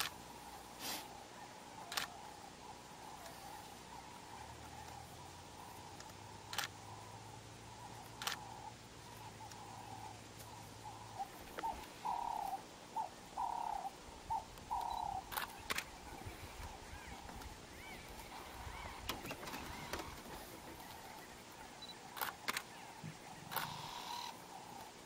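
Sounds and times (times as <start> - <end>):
bird hooting: 0.0 - 25.0
sharp clicks: 6.0 - 6.8, 8.1 - 8.4, 14.6 - 15.9, 21.8 - 22.7.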